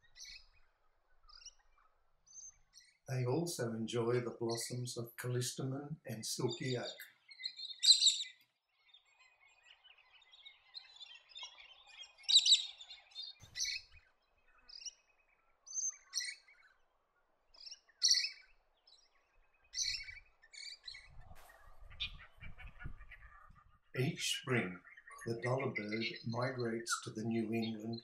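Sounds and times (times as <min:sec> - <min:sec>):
birds twittering: 0:00.0 - 0:28.0
parrots high-pitched calls: 0:07.5 - 0:08.4, 0:12.3 - 0:13.8.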